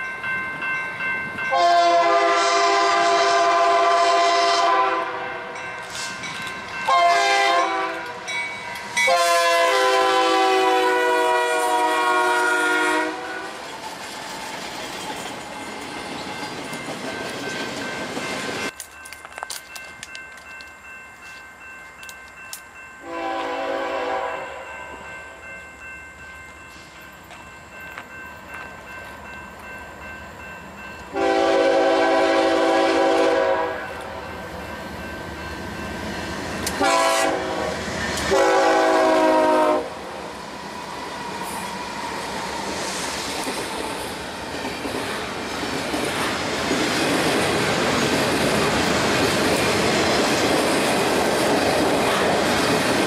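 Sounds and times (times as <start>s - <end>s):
locomotive air horn blasts: 1.5s - 5.4s, 6.9s - 8.2s, 9.1s - 13.6s, 23.0s - 24.7s, 31.1s - 34.1s, 36.8s - 40.0s
train wheels rumbling on rail: 2.0s - 25.4s, 26.5s - 53.0s.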